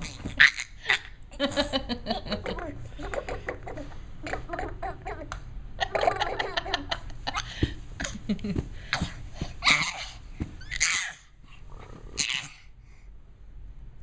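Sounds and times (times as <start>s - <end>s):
child giggling: 0.9s - 8.6s.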